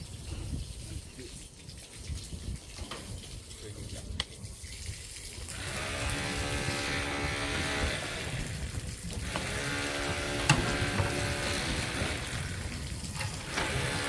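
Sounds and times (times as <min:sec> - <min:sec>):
motor humming: 0:05.5 - 0:14.0.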